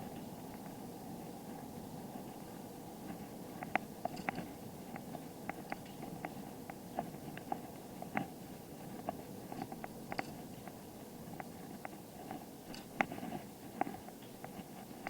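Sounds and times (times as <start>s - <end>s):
bicycle clicks and rattles: 3.6s - 8.3s.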